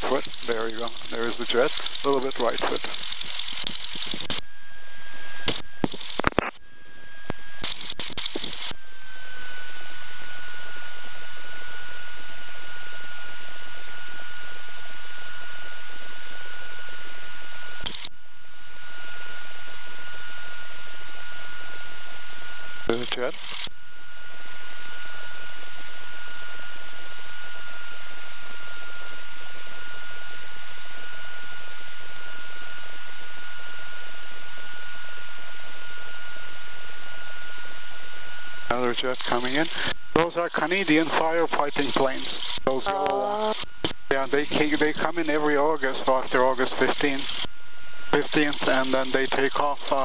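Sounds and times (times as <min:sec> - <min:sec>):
headset intercom hiss: 0:00.0 - 0:03.0, 0:38.7 - 0:50.0
high whine: 0:00.0 - 0:50.0
radio static hiss: 0:00.0 - 0:50.0.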